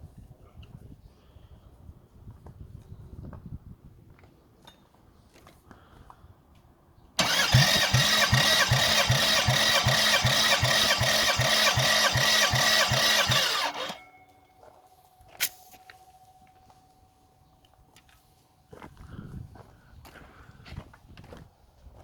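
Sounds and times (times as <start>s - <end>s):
engine cranking by starter: 7.2s - 14.1s.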